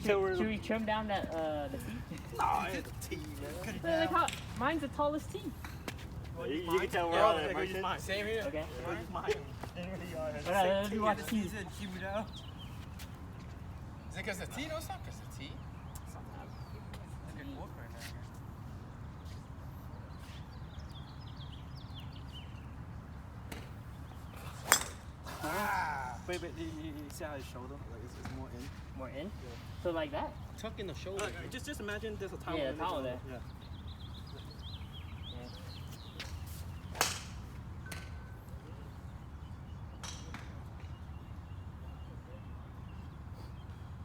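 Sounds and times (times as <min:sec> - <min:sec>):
outdoor background noise: 0:00.0 - 0:44.0
golf club striking ball: 0:24.6 - 0:25.1.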